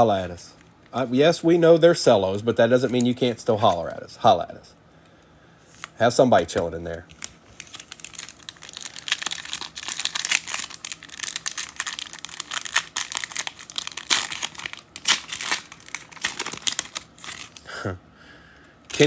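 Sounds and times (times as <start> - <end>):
plastic wrapper crinkling and tearing: 6.9 - 17.7.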